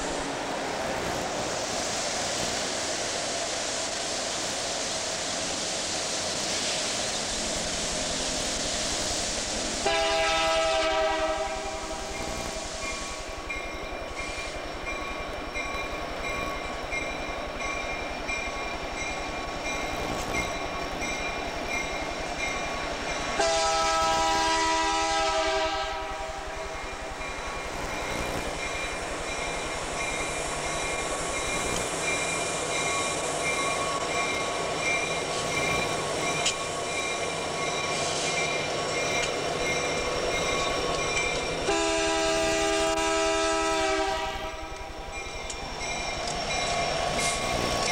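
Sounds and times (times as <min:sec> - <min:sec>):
freight train on rails: 0:00.0 - 0:47.9
locomotive air horn blast: 0:09.8 - 0:12.6, 0:23.4 - 0:26.5, 0:41.6 - 0:44.8.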